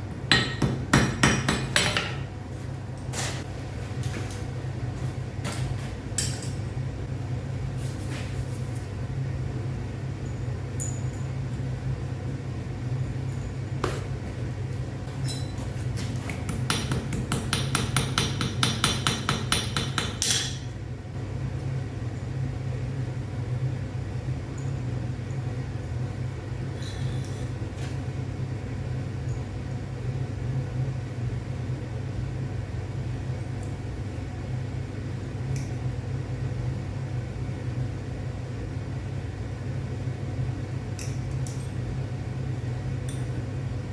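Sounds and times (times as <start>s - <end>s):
steady low hum: 0.0s - 43.9s
hammer ringing on anvil: 0.3s - 2.2s.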